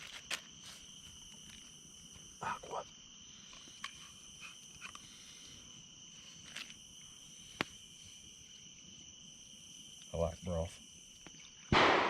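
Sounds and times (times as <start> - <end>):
insect chorus trilling: 0.0 - 12.0.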